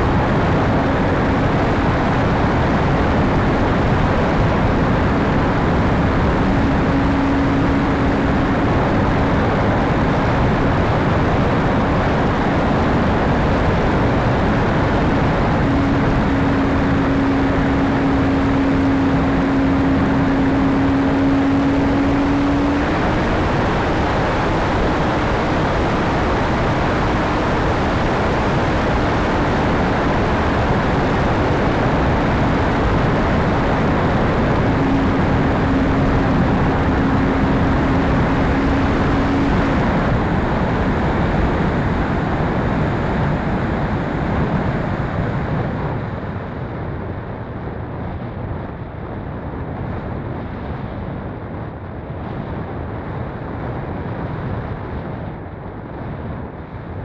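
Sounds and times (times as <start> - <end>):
faint hum: 0.0 - 45.4
wind rushing across microphone: 0.0 - 57.0.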